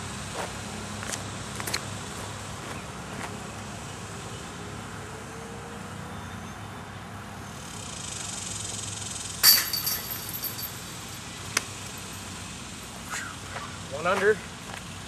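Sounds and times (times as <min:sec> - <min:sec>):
chains jangling: 0:09.4 - 0:11.2
disc hitting basket chains: 0:09.4 - 0:11.3.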